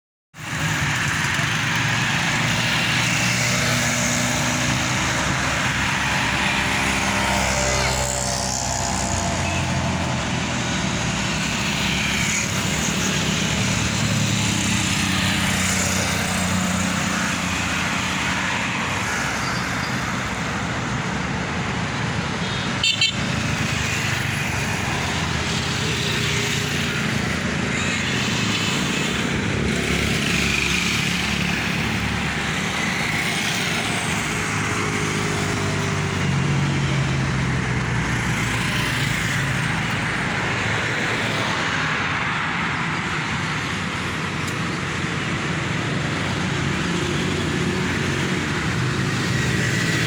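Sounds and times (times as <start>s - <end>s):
road rumble: 0.4s - 50.0s
trucks and cars passing: 0.4s - 50.0s
vehicle horn toot: 22.4s - 23.2s.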